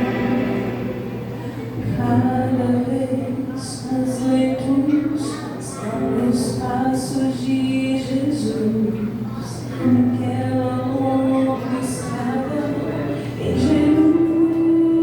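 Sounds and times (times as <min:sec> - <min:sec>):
instrumental accompaniment: 0:00.0 - 0:02.2
woman singing: 0:01.8 - 0:15.0.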